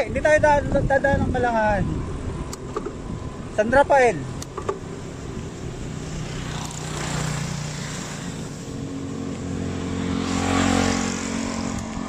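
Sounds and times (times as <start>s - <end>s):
vehicle engine passing by: 4.1s - 12.0s.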